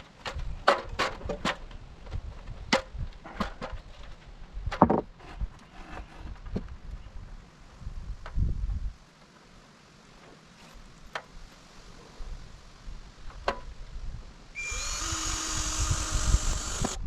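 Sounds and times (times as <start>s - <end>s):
power drill whining: 14.6s - 17.0s.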